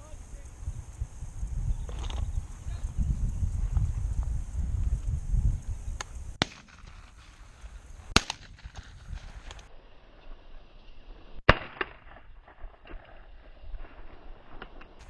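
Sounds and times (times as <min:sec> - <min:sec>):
shotgun shots: 0:06.4 - 0:09.6, 0:11.5 - 0:13.0.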